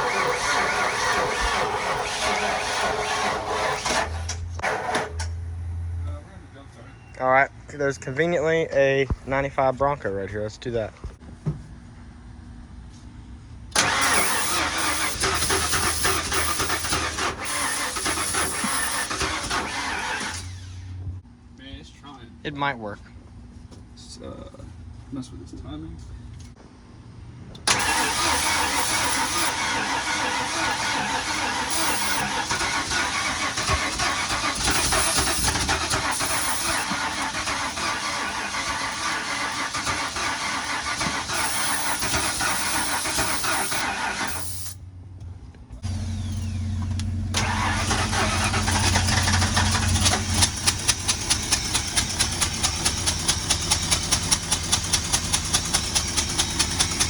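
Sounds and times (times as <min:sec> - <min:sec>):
engine running roughly: 0:00.0 - 0:05.2, 0:13.8 - 0:20.6, 0:27.7 - 0:44.4, 0:45.8 - 0:57.0
regular engine puffing: 0:00.0 - 0:05.4, 0:13.7 - 0:21.2, 0:27.6 - 0:44.8, 0:45.8 - 0:57.0.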